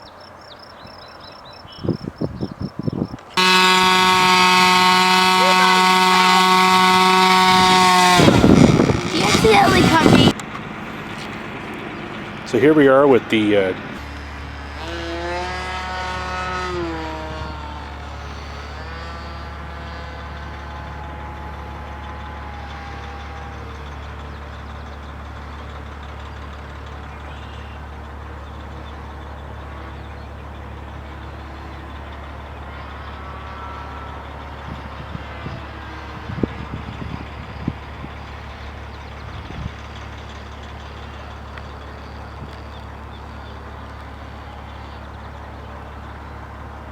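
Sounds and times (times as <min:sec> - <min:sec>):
engine passing: 0:03.1 - 0:46.9
low hum: 0:03.4 - 0:26.5.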